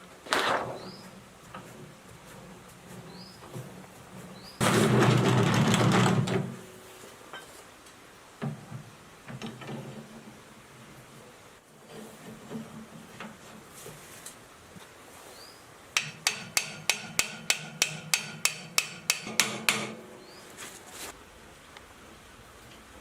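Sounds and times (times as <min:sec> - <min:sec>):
hammer striking metal: 0:16.0 - 0:20.0.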